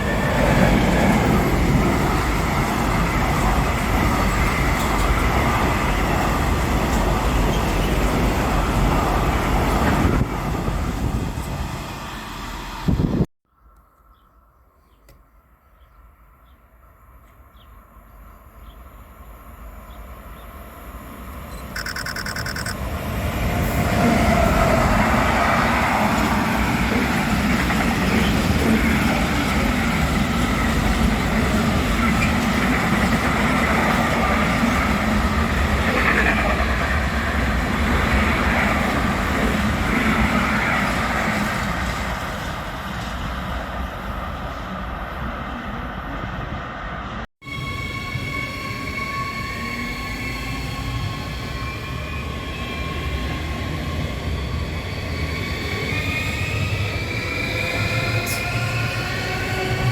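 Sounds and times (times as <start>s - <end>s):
train wheels rumbling on rail: 0.0s - 13.3s, 21.4s - 59.9s
short high-pitched tone: 21.8s - 22.8s.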